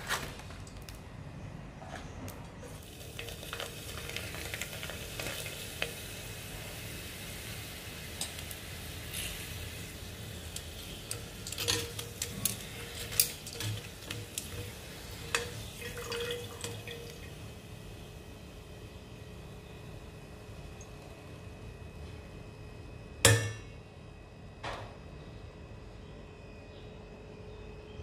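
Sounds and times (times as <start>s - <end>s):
crackers sizzling in hot oil: 2.6s - 20.3s.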